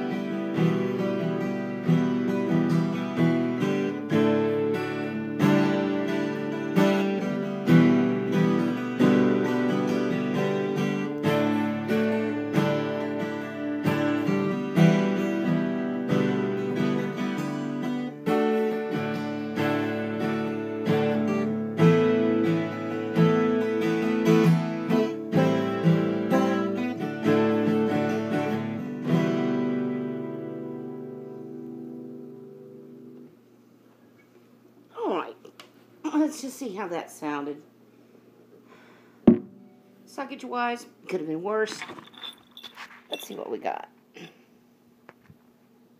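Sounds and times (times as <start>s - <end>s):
twelve-string acoustic guitar strumming: 0.0s - 33.3s.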